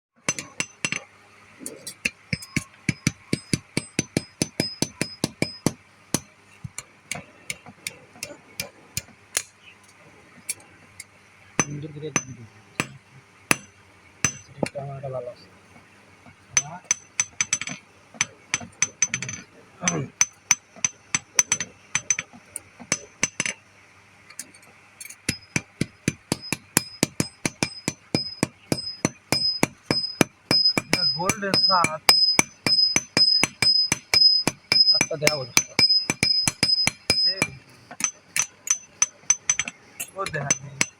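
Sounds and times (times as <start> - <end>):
hammer blows on metal anvil: 1.9 - 9.6, 11.6 - 14.8, 25.3 - 40.9.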